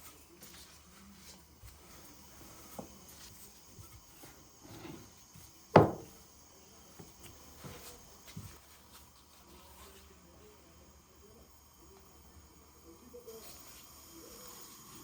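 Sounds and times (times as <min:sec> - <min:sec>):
household handling noises: 0:00.0 - 0:10.1
sharp knock: 0:05.8 - 0:06.1.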